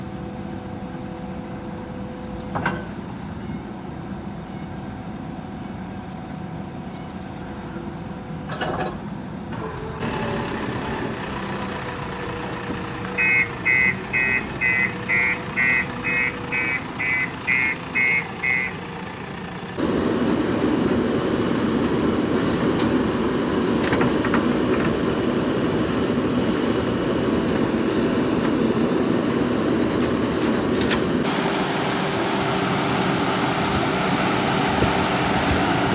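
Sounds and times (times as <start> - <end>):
diesel engine running: 0.0 - 35.9
reversing alarm beeping: 12.9 - 19.0.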